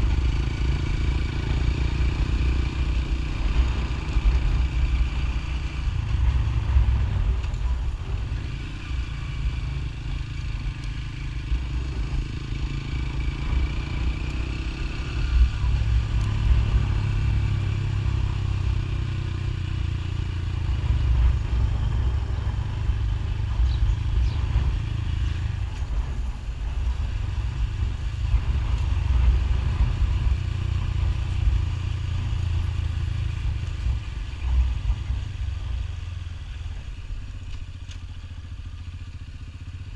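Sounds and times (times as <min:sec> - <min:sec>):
motorcycle engine: 0:00.0 - 0:39.9
wind rumble on microphone: 0:03.1 - 0:10.7.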